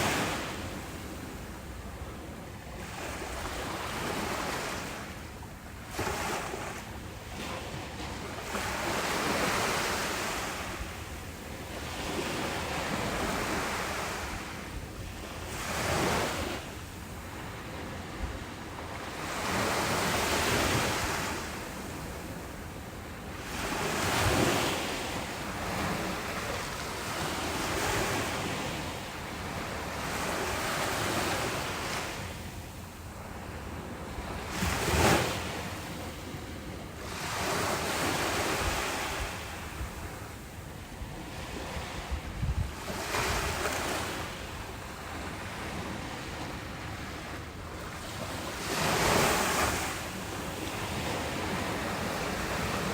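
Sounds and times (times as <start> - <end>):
ocean waves breaking: 0.0 - 52.9
wind buffeting microphone: 41.0 - 44.2.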